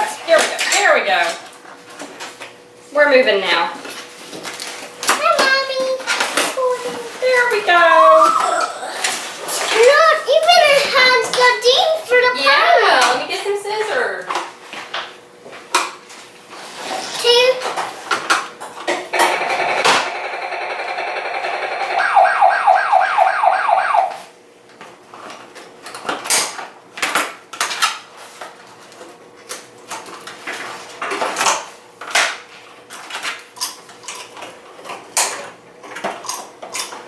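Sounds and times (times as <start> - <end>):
toy helicopter warbling electronic tone: 19.1 - 24.2.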